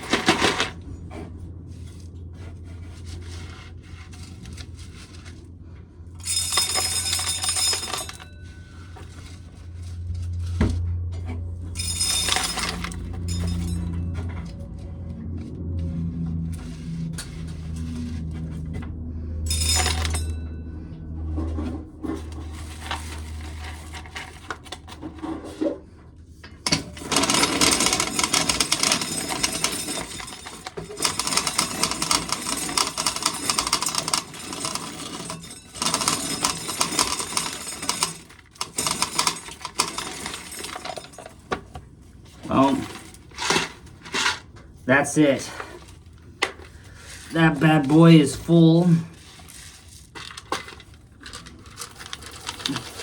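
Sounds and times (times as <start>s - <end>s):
corn kernels rattling into container: 49.2s - 53.0s.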